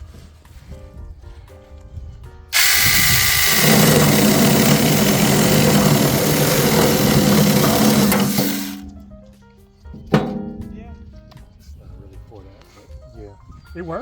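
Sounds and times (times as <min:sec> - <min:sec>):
mini chainsaw cutting wood: 0:02.5 - 0:08.8.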